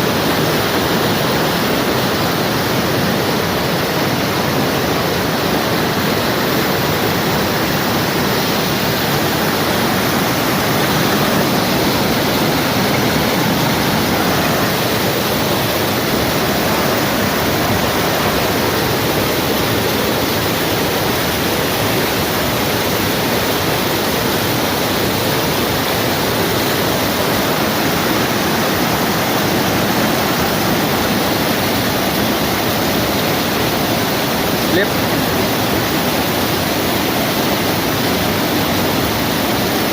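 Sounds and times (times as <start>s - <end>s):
waterfall crashing onto rocks: 0.0s - 39.9s.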